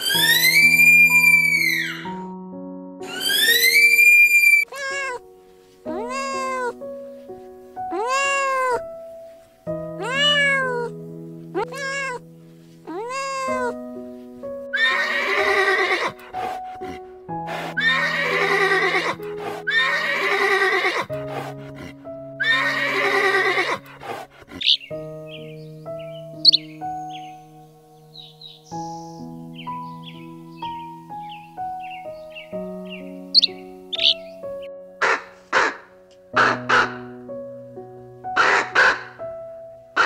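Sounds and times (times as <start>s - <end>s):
animal calls: 0.0s - 2.2s, 3.0s - 5.2s, 5.9s - 6.8s, 10.0s - 10.9s, 14.8s - 27.4s, 31.8s - 34.4s, 35.0s - 37.1s, 38.4s - 39.2s
soft piano music: 0.0s - 40.0s.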